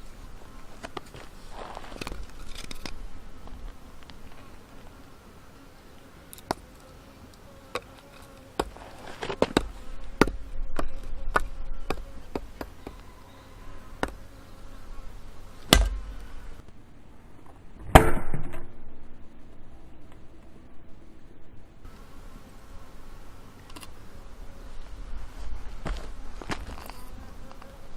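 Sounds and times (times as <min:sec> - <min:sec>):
blade chopping firewood: 0:08.6 - 0:13.0, 0:15.7 - 0:16.1.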